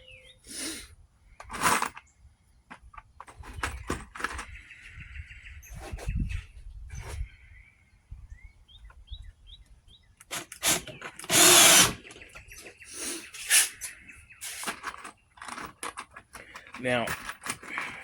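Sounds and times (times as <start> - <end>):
handling clicks and knocks: 1.4 - 4.7, 13.5 - 18.0
power drill driving screws: 10.3 - 12.1, 13.4 - 14.7.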